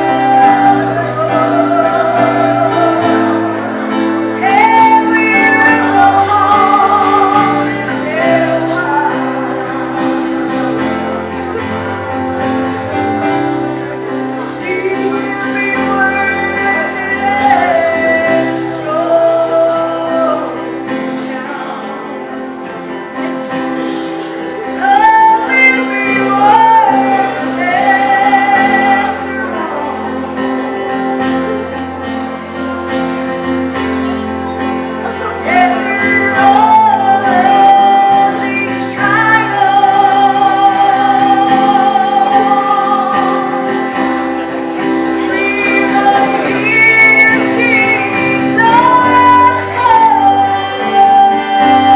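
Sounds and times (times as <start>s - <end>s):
woman singing gospel song: 0.0s - 10.0s, 14.4s - 22.3s, 24.8s - 30.2s, 35.4s - 43.8s, 45.2s - 51.9s
held instrumental chords: 0.0s - 51.9s.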